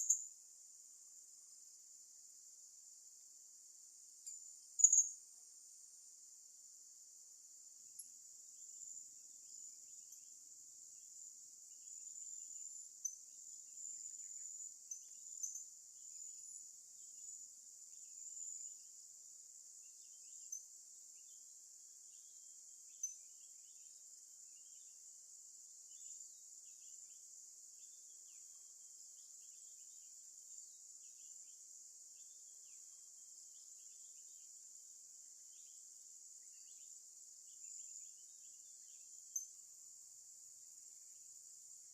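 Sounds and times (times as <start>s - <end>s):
insect chirps: 0.0s - 41.9s
insect chorus: 0.0s - 41.9s.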